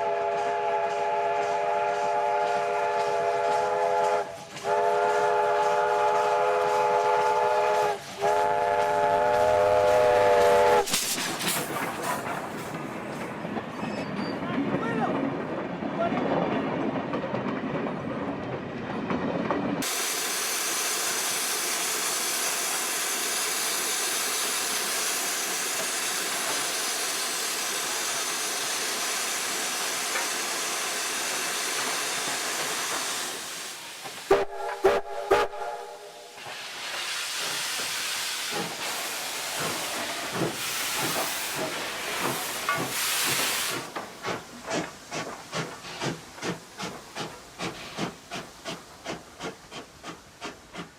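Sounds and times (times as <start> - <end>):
locomotive exhaust beats: 0.0 - 10.9
steam whistle blasts: 0.0 - 11.0, 34.3 - 36.4
steam hissing: 0.0 - 13.2, 19.8 - 50.9.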